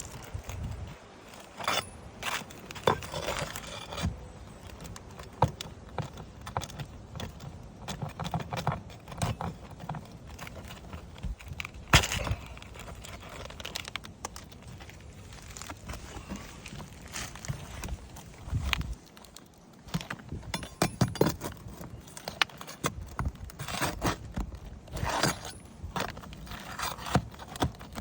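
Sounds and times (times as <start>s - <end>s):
scraping and crinkling roof shingles: 0.0s - 28.0s.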